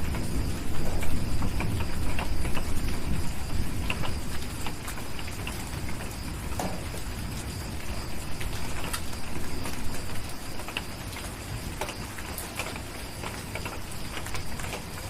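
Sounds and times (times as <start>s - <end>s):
steady rain: 0.0s - 15.0s
wood fire popping and crackling: 0.0s - 15.0s.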